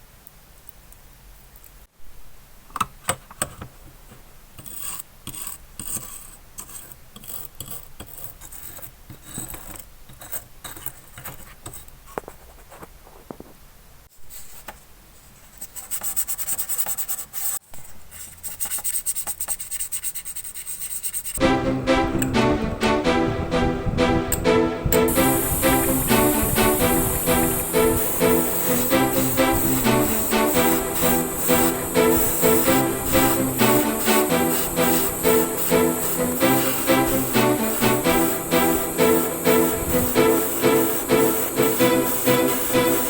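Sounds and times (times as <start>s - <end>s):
scraping and rubbing on model car: 4.0s - 13.5s, 14.1s - 21.4s.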